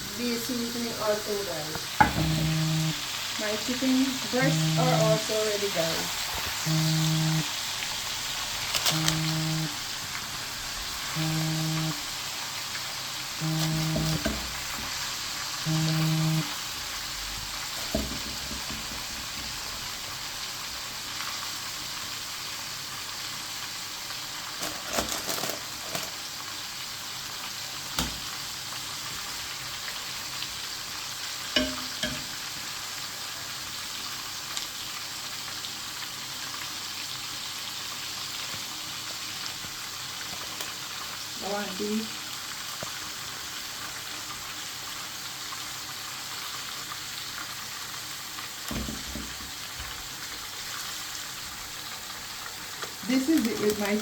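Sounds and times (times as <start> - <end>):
food sizzling in hot oil: 0.0 - 54.0
short low-pitched buzzes: 2.2 - 3.0, 6.6 - 7.5, 8.9 - 9.8, 11.1 - 12.0, 13.4 - 14.4, 15.6 - 16.6
utensils knocking: 31.6 - 32.3.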